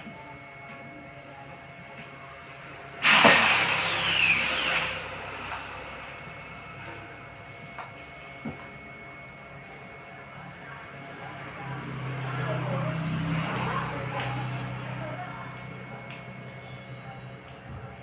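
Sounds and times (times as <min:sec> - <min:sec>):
power tool winding down: 0:03.0 - 0:06.5.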